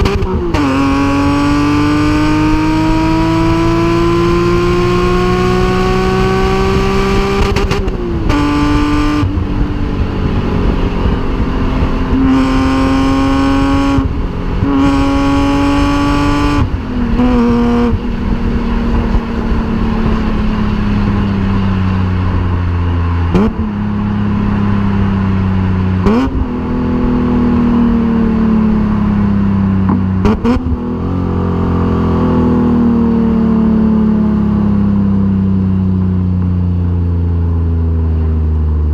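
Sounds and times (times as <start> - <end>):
car engine revving hard: 0.0 - 21.2, 23.3 - 23.8, 26.0 - 27.4, 29.9 - 31.5.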